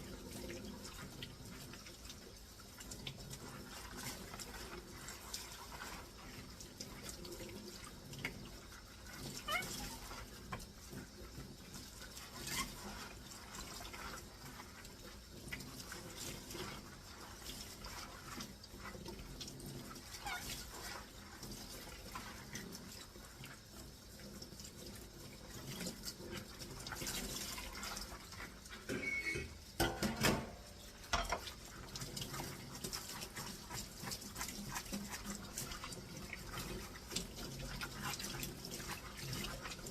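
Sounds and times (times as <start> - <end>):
water running and splashing: 0.0 - 39.9
dishes clattering: 28.8 - 31.5
dishes clinking: 28.8 - 31.5.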